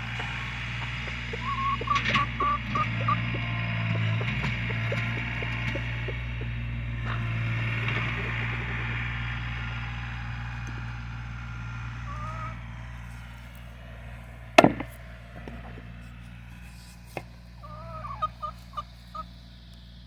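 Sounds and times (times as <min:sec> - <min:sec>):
engine humming: 0:00.0 - 0:20.0
sharp knock: 0:14.6 - 0:15.0.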